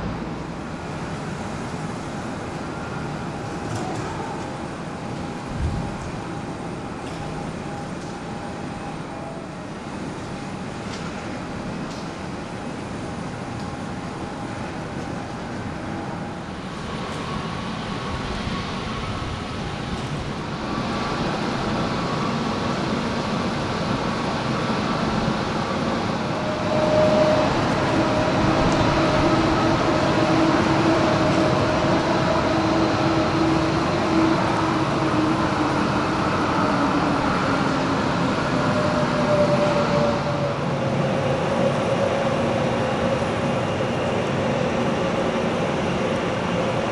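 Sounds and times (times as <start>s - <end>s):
jet engines rushing: 15.1s - 46.9s.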